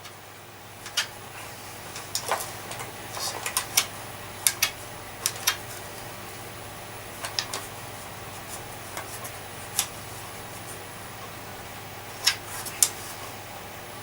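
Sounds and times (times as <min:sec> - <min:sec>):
faint steady hum: 0:00.0 - 0:14.0
vacuum cleaner parts clicking: 0:01.9 - 0:06.1, 0:07.2 - 0:07.8.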